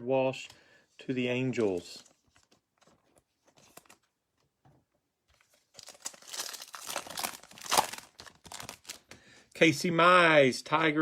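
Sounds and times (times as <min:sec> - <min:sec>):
foil wrapper tearing and crinkling: 0:05.8 - 0:09.1.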